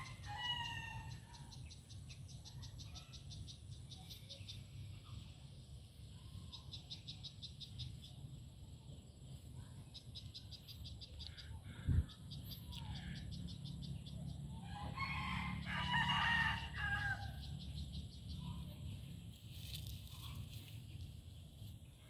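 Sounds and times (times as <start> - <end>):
rooster crowing: 0.0 - 1.3, 14.6 - 17.5.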